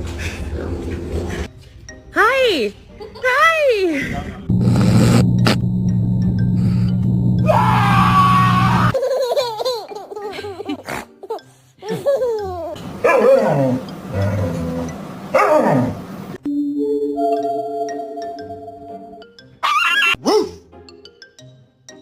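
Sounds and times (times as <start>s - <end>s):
background music: 0.0s - 4.5s, 5.1s - 22.0s
dog yipping and whining: 19.6s - 20.5s.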